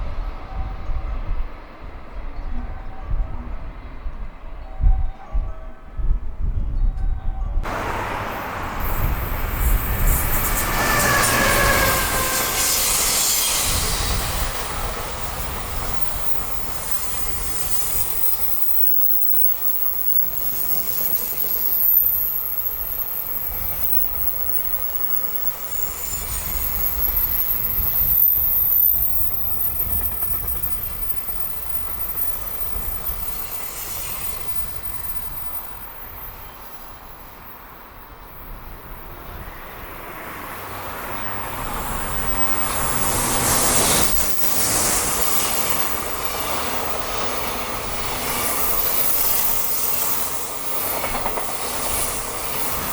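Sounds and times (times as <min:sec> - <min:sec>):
locomotive motor whine: 0:07.6 - 0:16.8
wagons rumbling over rail joints: 0:07.6 - 0:18.7.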